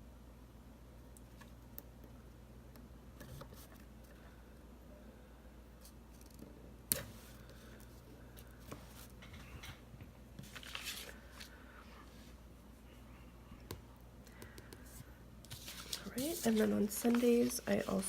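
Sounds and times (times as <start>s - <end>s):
paper rustling: 10.4s - 11.6s, 15.5s - 18.0s.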